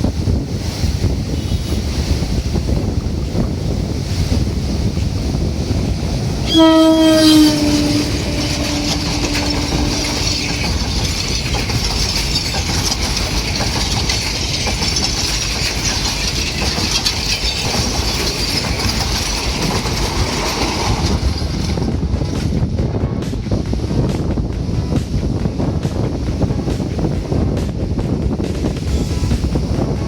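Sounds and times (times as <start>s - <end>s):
rushing of train cars: 0.0s - 30.0s
train wheels clattering over rail joints: 0.1s - 30.0s
train horn blast: 6.4s - 11.3s.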